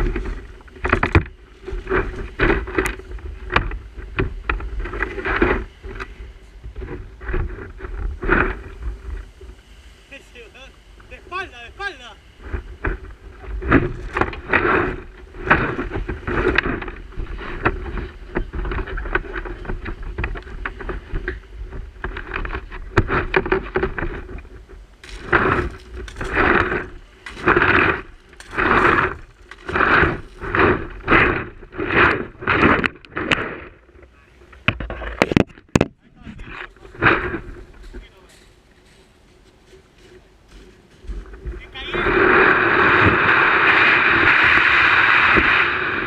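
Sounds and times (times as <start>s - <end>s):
wind rumble on microphone: 0.0s - 46.0s
paddle strokes splashing water: 25.0s - 34.0s.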